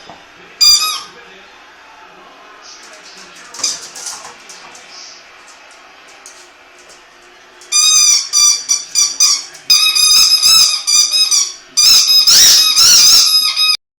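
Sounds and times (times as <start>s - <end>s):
dog squealing: 7.7s - 13.8s.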